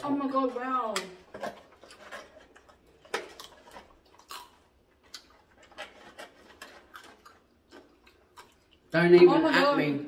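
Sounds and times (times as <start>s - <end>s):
crunchy chewing: 1.3s - 8.9s.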